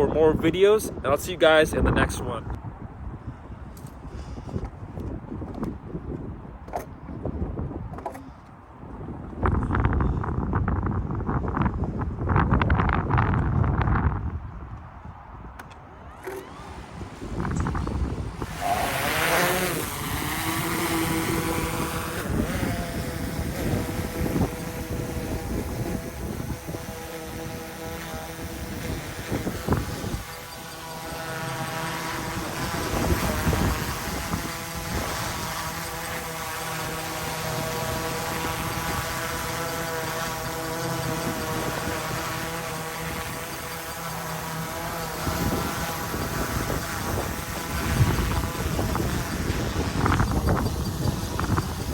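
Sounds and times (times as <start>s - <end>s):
wind rumbling on microphone: 0.0s - 51.9s
drone propellers humming: 16.0s - 51.9s.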